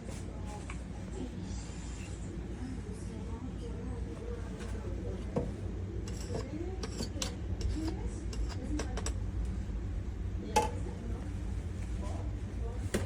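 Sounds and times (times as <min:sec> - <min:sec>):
steady low hum: 0:00.0 - 0:13.0
kitchenware clicks and clinks: 0:06.1 - 0:09.2.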